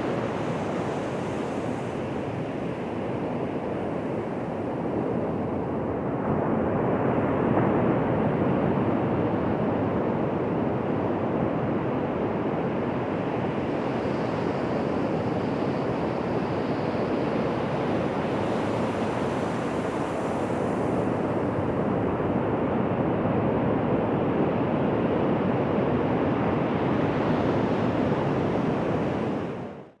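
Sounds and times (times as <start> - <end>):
waves washing onto beach: 0.0 - 5.8, 12.0 - 22.5.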